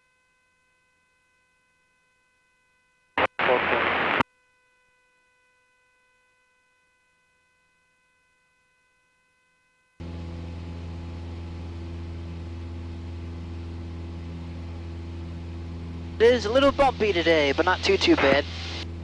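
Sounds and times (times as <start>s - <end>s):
faint electronic whine: 3.2s - 4.2s, 10.0s - 19.0s
aircraft engine drone over intercom: 10.0s - 19.0s.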